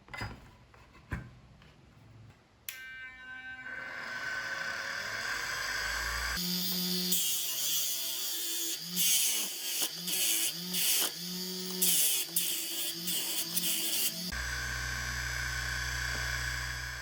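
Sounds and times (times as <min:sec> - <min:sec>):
small electric motor tool humming: 0:03.7 - 0:17.0
tool hissing into material: 0:05.3 - 0:17.0.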